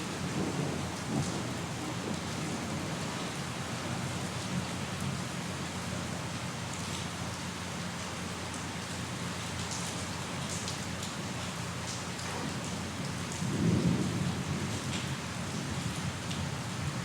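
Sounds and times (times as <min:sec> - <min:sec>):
low thunder rumble: 0:00.0 - 0:03.2, 0:13.4 - 0:17.0
raindrops pattering: 0:00.0 - 0:17.0
steady rain: 0:00.0 - 0:17.0.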